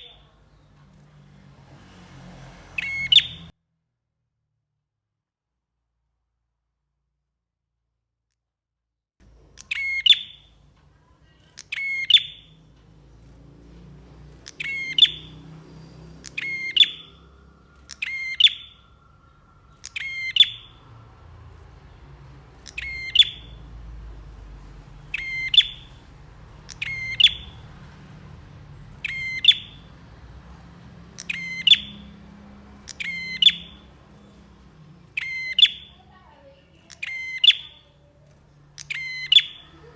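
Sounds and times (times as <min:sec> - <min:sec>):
songbird chattering calls: 0:02.8 - 0:03.5, 0:09.6 - 0:10.6, 0:11.2 - 0:12.6, 0:14.4 - 0:39.9
faint low rumble: 0:09.2 - 0:39.9.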